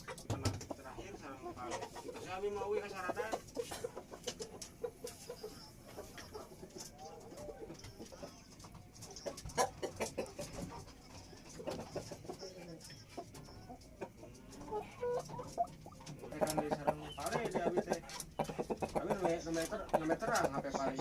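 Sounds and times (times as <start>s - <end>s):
birds calling: 12.8s - 21.0s.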